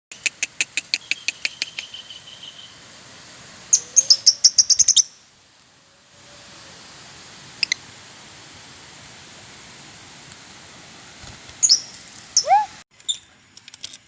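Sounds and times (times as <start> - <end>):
lovebird chirping: 0.3 - 2.8, 3.7 - 5.3, 7.6 - 7.8, 11.6 - 13.3.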